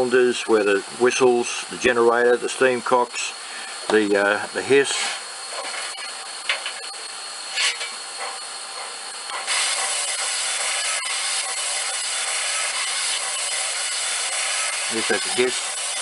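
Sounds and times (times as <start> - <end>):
steam puffs: 9.3 - 15.9
steam hiss from small speaker: 9.4 - 16.0.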